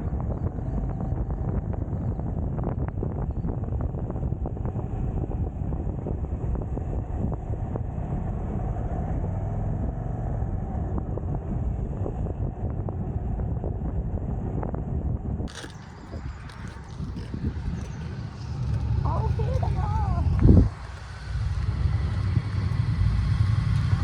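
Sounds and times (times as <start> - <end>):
wind on microphone: 0.0 - 24.0
motorcycle engine running: 15.8 - 24.0.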